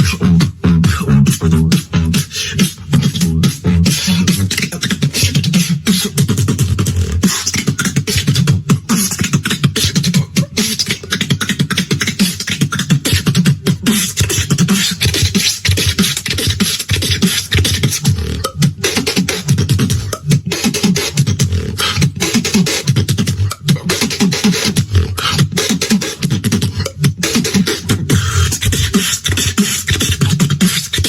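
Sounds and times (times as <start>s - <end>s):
person beatboxing: 0.0s - 31.0s.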